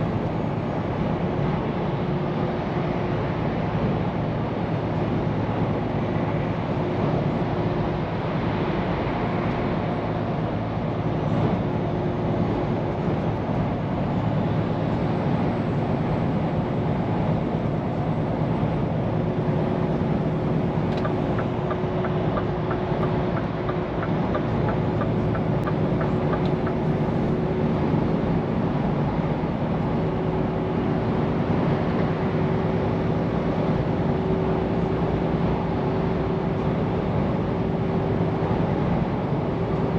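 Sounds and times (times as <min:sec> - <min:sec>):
road noise: 0:00.0 - 0:39.9
truck diesel engine running: 0:08.9 - 0:39.9.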